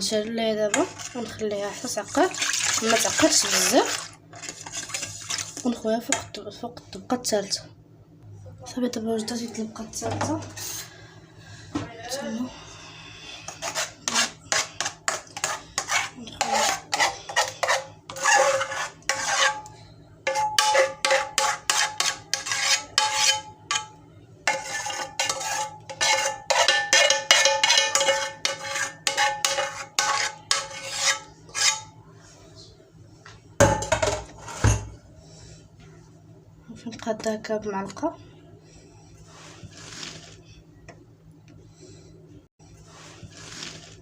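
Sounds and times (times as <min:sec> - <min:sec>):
spoon scraping a saucepan: 0:00.6 - 0:06.3, 0:13.5 - 0:32.0, 0:33.6 - 0:35.0, 0:43.0 - 0:44.0.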